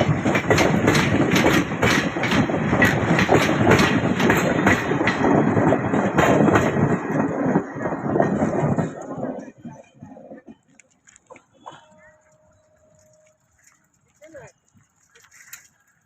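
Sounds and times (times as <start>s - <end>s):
train wheels clacking over rail joints: 0.0s - 11.2s
train rumble: 0.0s - 16.0s.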